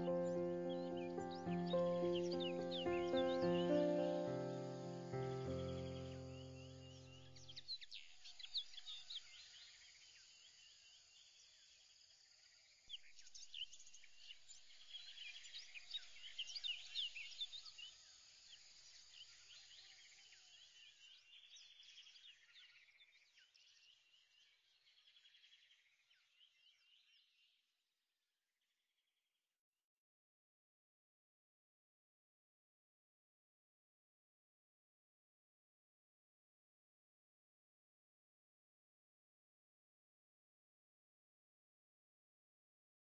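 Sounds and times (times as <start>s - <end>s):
faint small birds chirping: 0.0s - 27.9s.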